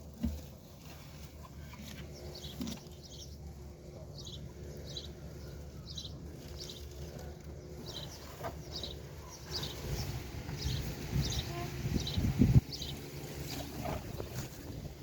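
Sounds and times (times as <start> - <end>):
bird chirping: 4.1 - 13.0.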